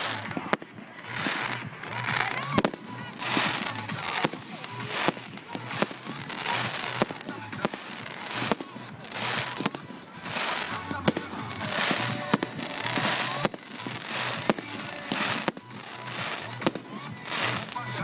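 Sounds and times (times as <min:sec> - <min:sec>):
crackle and hiss of bursting shells: 0:00.0 - 0:18.0
fireworks bangs: 0:00.0 - 0:18.0.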